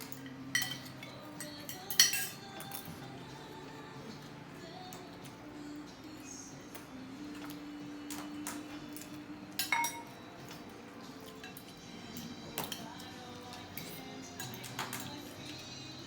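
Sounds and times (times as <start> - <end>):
cutlery clinking on a plate: 0.0 - 3.1, 7.4 - 15.7.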